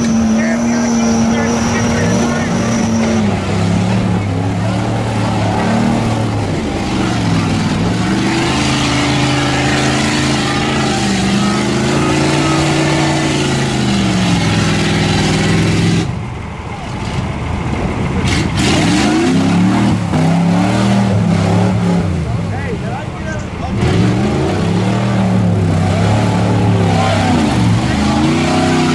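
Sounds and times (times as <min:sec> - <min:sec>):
truck engine revving hard: 0:00.0 - 0:28.9.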